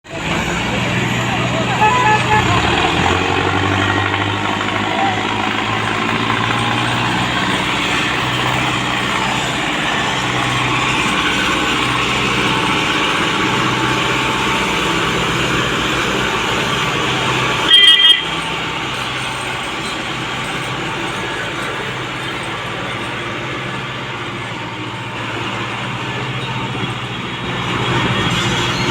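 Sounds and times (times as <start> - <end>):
tractor diesel engine running: 0.0 - 28.9
vehicle horn blast: 0.4 - 5.5, 17.6 - 18.6.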